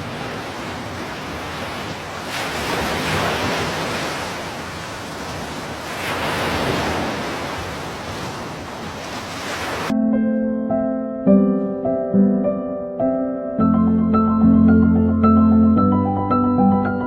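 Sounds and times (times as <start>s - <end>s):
surf waves washing in: 0.0s - 10.0s.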